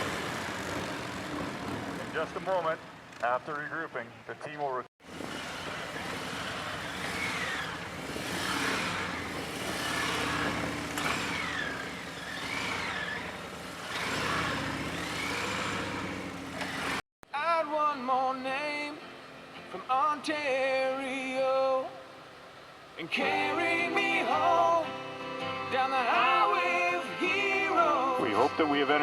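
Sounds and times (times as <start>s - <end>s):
motorcycle engines: 0.0s - 17.0s, 21.8s - 29.0s
song with singing: 17.3s - 22.1s, 23.0s - 29.0s.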